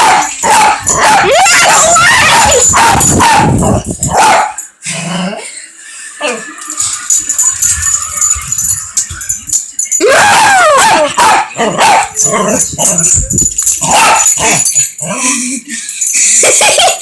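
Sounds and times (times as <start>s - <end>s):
dog barking: 0.0s - 4.6s, 10.1s - 12.9s, 13.8s - 14.6s.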